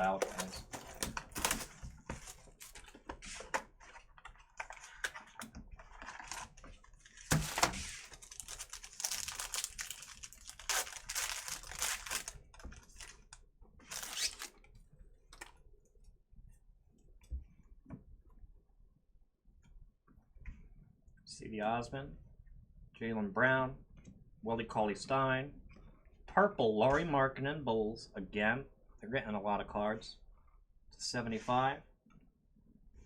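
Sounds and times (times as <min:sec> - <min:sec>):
cards clicking and rustling: 0:00.0 - 0:13.3, 0:13.9 - 0:14.6
wrappers tearing and crinkling: 0:00.0 - 0:14.6.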